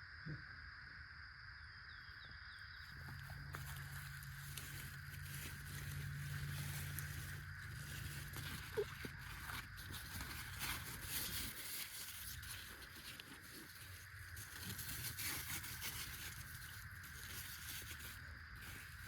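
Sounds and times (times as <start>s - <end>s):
faint rustling: 2.9s - 19.0s.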